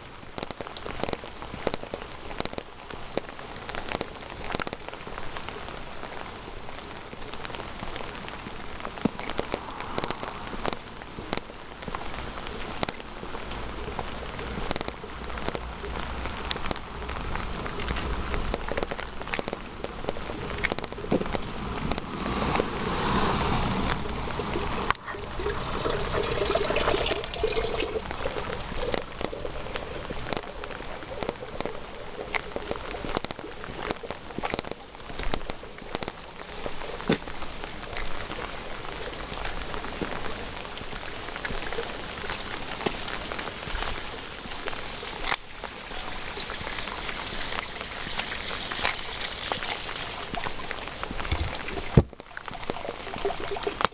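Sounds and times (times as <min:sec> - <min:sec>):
rain drops pattering: 0:00.0 - 0:53.9
rush of noise: 0:20.3 - 0:33.1.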